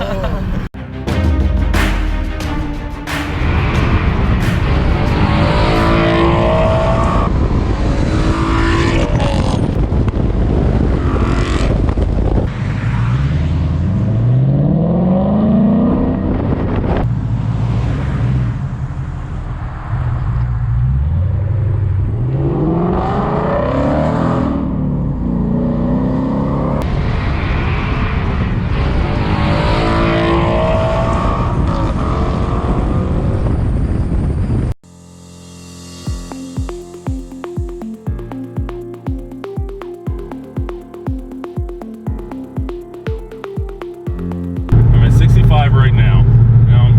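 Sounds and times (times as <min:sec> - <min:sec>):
car engine revving: 0:03.1 - 0:33.4, 0:44.7 - 0:46.9.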